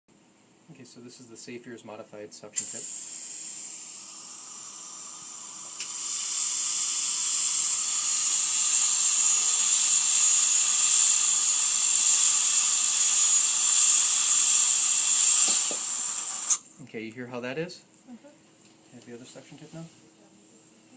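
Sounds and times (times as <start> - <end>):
dental suction hissing: 2.6 - 16.7.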